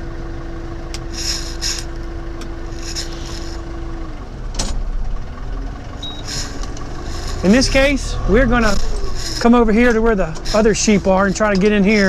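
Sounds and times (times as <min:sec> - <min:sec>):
steady engine whine: 0:00.0 - 0:12.0
tractor engine running: 0:00.0 - 0:12.0
clunk: 0:04.5 - 0:05.0.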